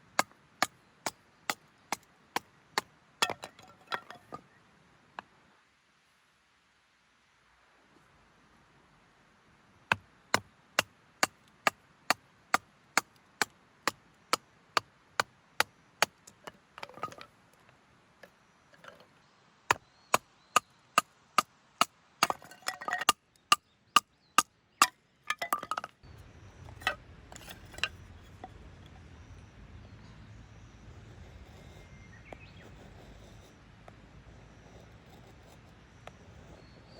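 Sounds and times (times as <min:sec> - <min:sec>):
tool chopping wood: 0:21.8 - 0:23.2.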